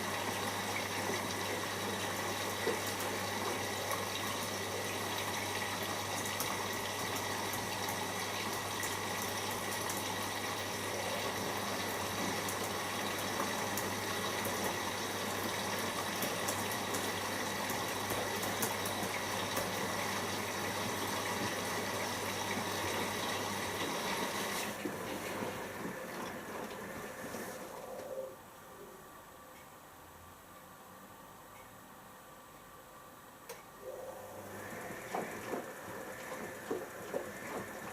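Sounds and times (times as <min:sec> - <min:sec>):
water rushing into drum: 0:33.9 - 0:37.9.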